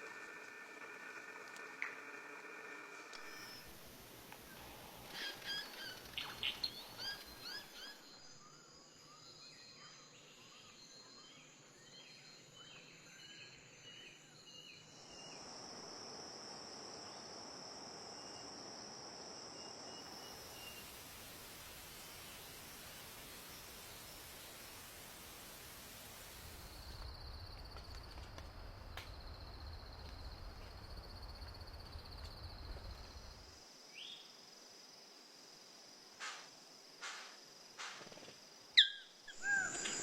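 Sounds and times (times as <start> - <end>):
steady hiss: 0.0 - 9.1, 14.8 - 40.0
birds chirping: 4.5 - 8.1, 38.8 - 40.0.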